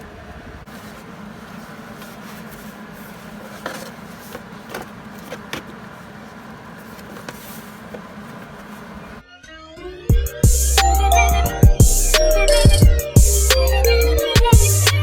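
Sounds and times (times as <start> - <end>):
steady mechanical hum: 0.0 - 9.2.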